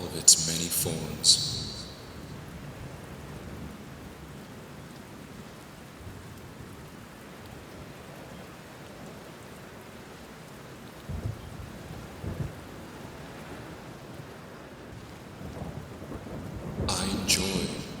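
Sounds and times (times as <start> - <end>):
steady rainfall: 0.0 - 18.0.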